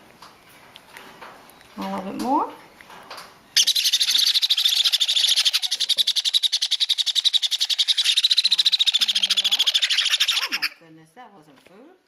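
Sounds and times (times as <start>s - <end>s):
parrot chick begging call: 3.6s - 10.8s.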